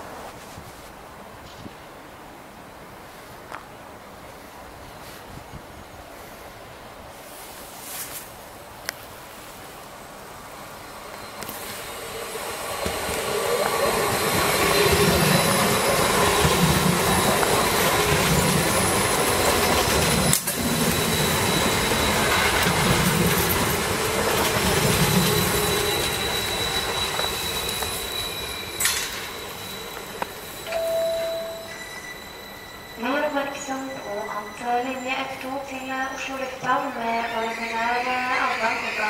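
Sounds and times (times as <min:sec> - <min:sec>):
train wheels rushing on rail: 0:04.2 - 0:39.0
electric train whine: 0:09.6 - 0:39.0
wheels clattering over rail joints: 0:12.8 - 0:30.7
brief steady tone: 0:25.8 - 0:36.6.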